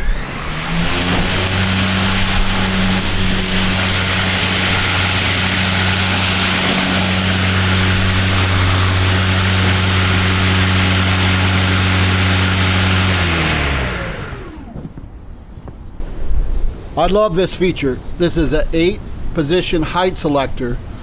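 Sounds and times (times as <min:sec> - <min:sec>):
electric lawn mower running: 0:00.0 - 0:14.8
mower blades spinning down: 0:00.0 - 0:15.0.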